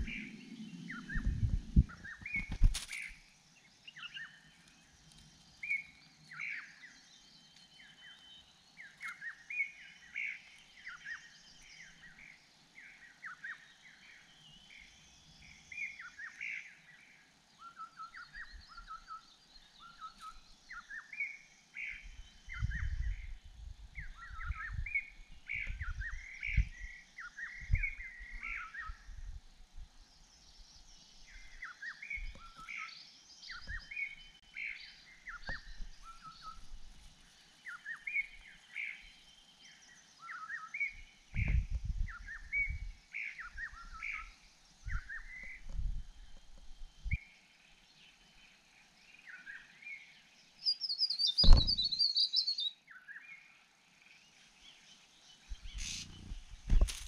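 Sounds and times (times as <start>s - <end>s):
small birds chirping: 0.0s - 57.0s
low thumps and rumbles: 1.1s - 2.7s, 51.4s - 51.9s, 55.5s - 57.0s.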